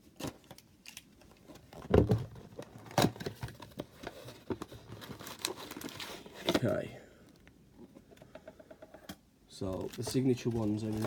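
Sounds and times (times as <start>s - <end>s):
cardboard box clicks and rustles: 1.5s - 6.8s.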